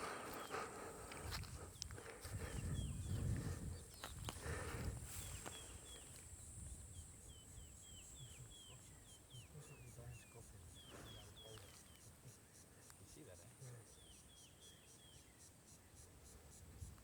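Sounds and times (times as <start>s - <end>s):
bird chirping: 2.5s - 16.1s.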